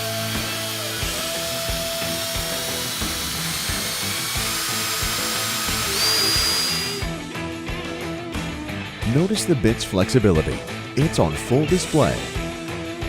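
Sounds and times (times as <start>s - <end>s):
power drill grinding into steel: 0.0s - 7.2s.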